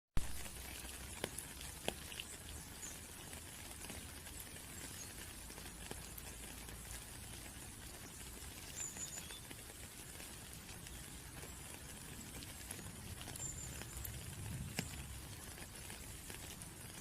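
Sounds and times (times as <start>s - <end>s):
steady rain hissing: 0.2s - 17.0s
water drops ticking: 0.2s - 17.0s.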